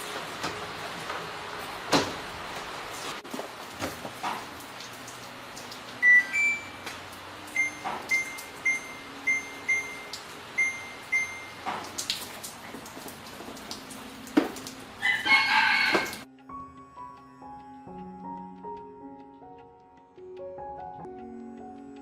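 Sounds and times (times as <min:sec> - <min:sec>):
rooster crowing: 0:15.0 - 0:16.3.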